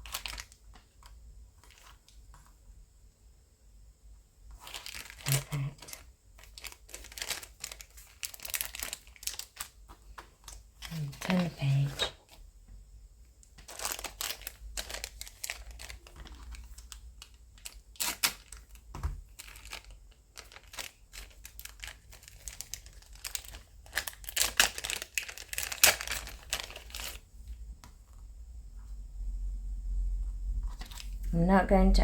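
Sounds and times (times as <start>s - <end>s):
plastic packaging crinkling: 0.0s - 2.6s, 4.5s - 12.4s, 13.5s - 27.3s, 30.6s - 31.3s.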